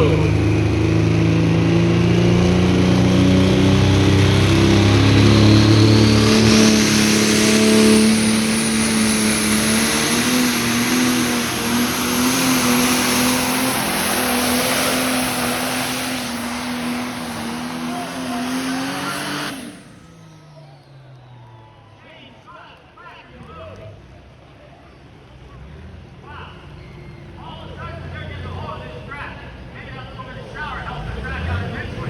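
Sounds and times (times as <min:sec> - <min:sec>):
high whine rising in pitch: 0:00.0 - 0:20.0
tractor engine under load: 0:00.0 - 0:20.3.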